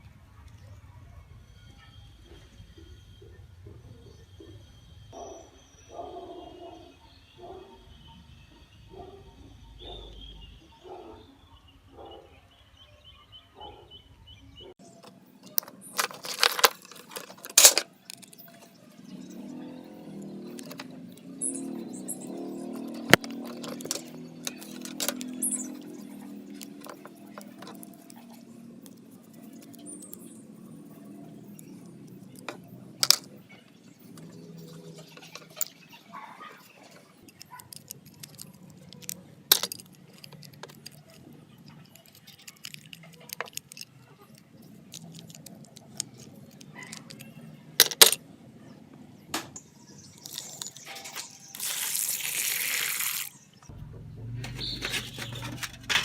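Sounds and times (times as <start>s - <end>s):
metal parts clicking and clinking: 14.8s - 18.8s, 20.1s - 36.0s, 36.6s - 48.2s, 50.2s - 52.3s, 54.4s - 56.0s.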